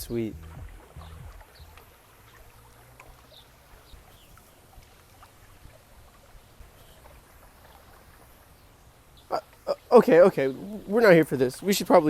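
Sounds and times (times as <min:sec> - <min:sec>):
low outdoor rumble: 0:00.0 - 0:01.8.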